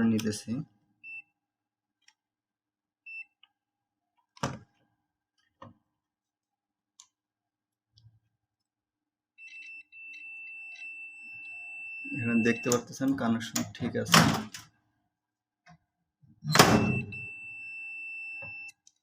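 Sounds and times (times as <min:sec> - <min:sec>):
multimeter beeps: 0:09.4 - 0:12.9, 0:16.5 - 0:18.8.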